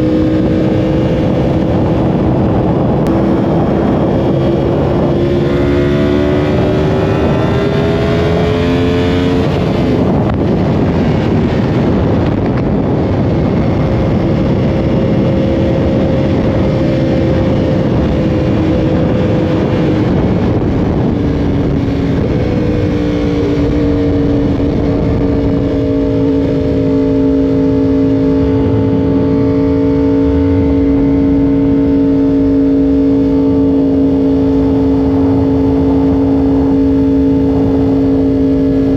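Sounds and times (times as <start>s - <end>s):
motorcycle engine at speed: 0.0s - 38.9s
wind rush: 0.0s - 38.9s.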